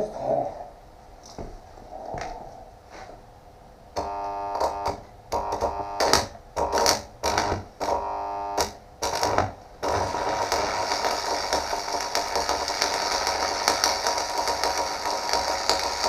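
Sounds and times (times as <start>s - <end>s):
welder arc buzzing: 4.0s - 16.0s.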